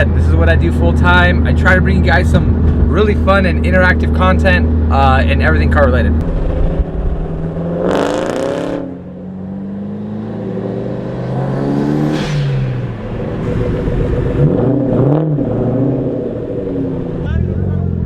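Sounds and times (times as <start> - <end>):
car engine revving: 0.0 - 18.0
loud rush of noise: 11.3 - 17.3.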